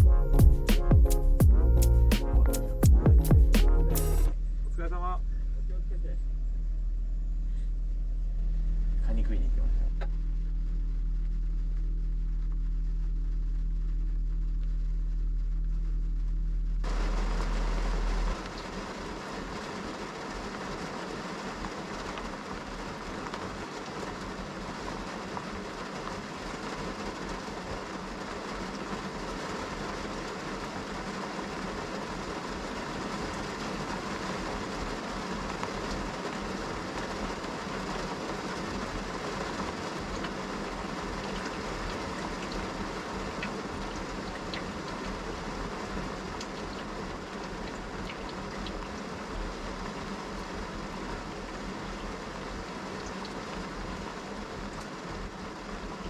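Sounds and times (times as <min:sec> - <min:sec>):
steady low hum: 0:00.0 - 0:18.7
heavy rain downpour: 0:16.8 - 0:56.0.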